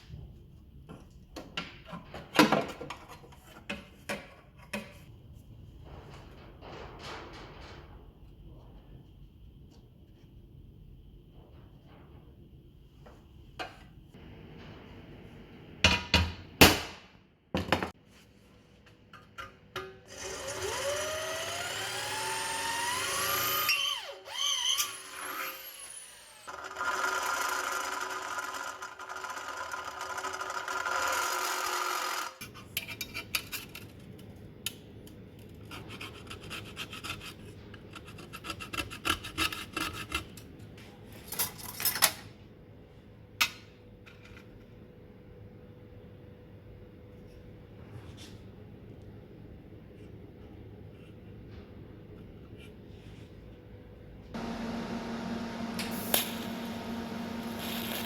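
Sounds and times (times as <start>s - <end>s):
metalworking tool motor whining: 20.1s - 32.4s, 54.4s - 58.0s.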